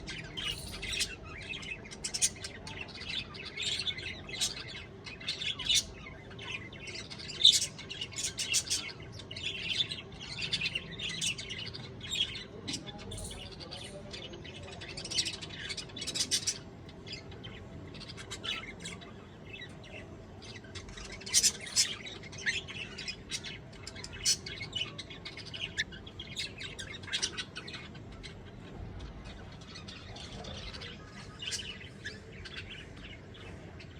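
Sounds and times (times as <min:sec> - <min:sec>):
bird chirping and squawking: 0:00.0 - 0:02.7.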